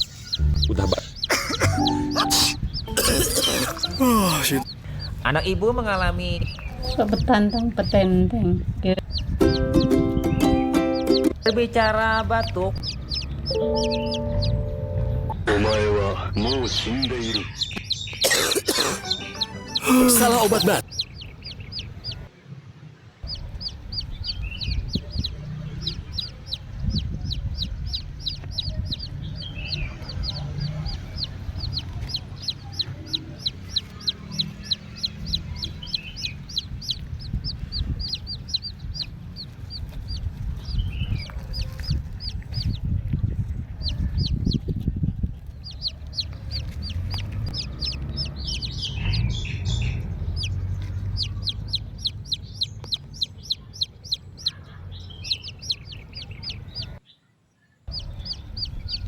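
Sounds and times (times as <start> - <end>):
lower falling bird calls: 0.0 - 4.8
bird high-pitched peeping: 0.0 - 22.3, 23.2 - 59.0
low rumble: 0.4 - 1.0.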